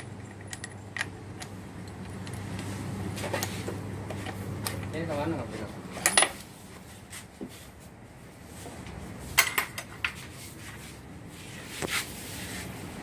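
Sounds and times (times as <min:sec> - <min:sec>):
metal tools clinking: 0:05.9 - 0:06.4.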